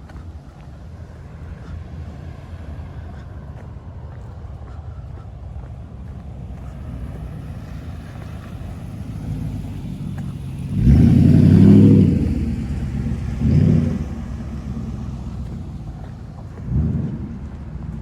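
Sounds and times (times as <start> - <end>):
car driving past: 5.6 - 18.0.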